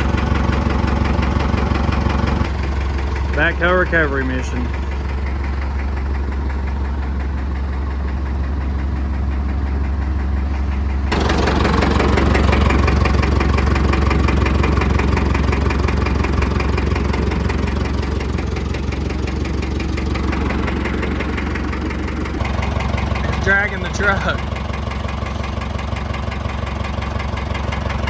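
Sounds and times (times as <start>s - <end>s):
truck diesel engine running: 0.0s - 28.0s.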